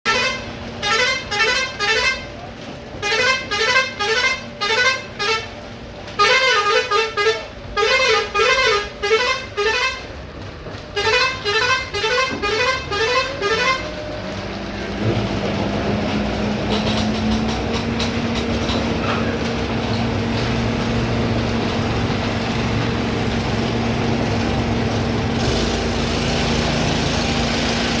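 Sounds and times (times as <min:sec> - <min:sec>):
musical vehicle horn tune: 0:00.0 - 0:02.3, 0:03.0 - 0:05.6, 0:06.2 - 0:10.1, 0:11.0 - 0:14.0
engine hum: 0:00.1 - 0:28.0.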